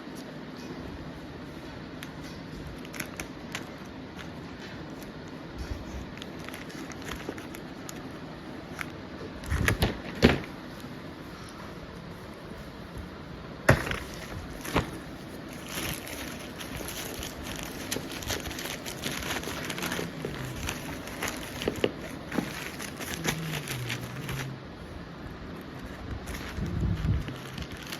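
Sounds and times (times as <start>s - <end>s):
packaging rustling and crinkling: 2.3s - 10.9s, 13.7s - 24.6s, 25.6s - 27.9s.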